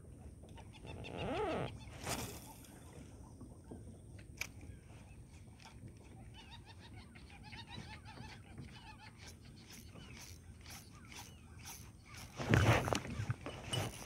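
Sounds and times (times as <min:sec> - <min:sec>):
birds chirping: 0:06.0 - 0:14.0.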